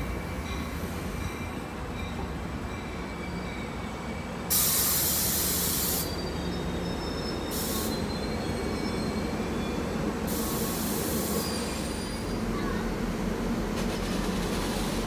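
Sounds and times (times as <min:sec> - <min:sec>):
train rumbling slowly: 0:00.0 - 0:15.0
wheel squeals: 0:11.2 - 0:12.4.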